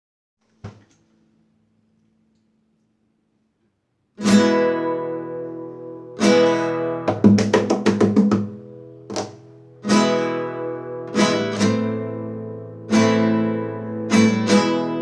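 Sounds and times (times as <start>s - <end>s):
acoustic guitar strumming: 4.2s - 15.0s.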